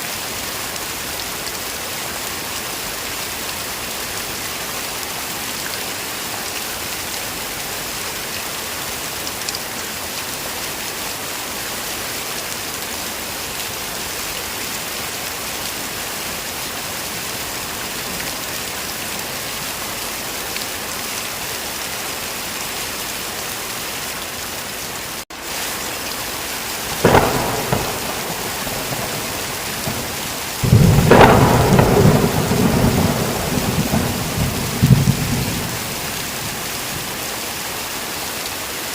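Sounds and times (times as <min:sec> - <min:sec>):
heavy rain falling: 0:00.0 - 0:38.9
thunder crack: 0:26.9 - 0:36.7
thunder rumble: 0:26.9 - 0:37.1.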